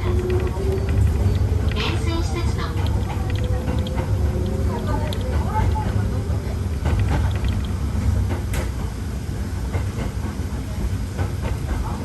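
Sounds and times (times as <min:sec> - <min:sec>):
electric train rumble: 0:00.0 - 0:12.0.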